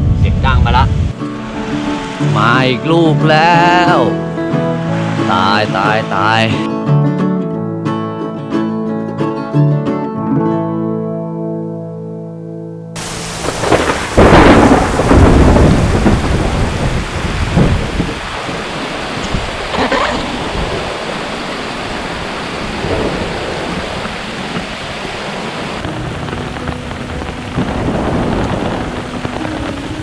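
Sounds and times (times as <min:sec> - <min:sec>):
heavy rain pouring: 0:00.0 - 0:06.8, 0:13.0 - 0:30.0
gusty wind: 0:00.0 - 0:07.2, 0:13.0 - 0:30.0
thunder clap rumbling: 0:13.0 - 0:24.7, 0:25.6 - 0:30.0.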